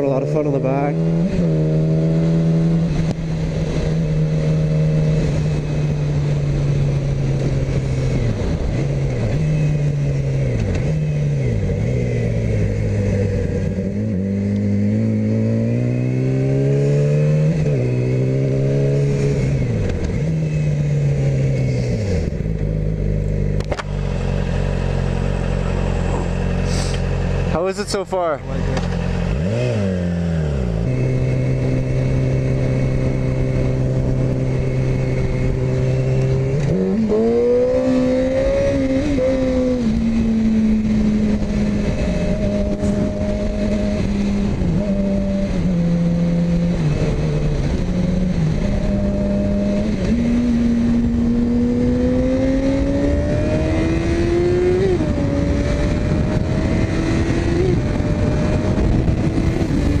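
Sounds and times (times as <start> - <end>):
motorcycle engine revving: 0.0 - 60.0
wind rushing over microphone: 29.2 - 60.0.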